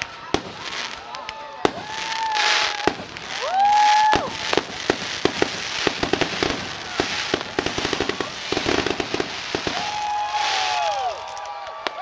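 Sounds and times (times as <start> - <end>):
firework bangs and crackling: 0.0 - 12.0
firework whistle: 1.7 - 11.2.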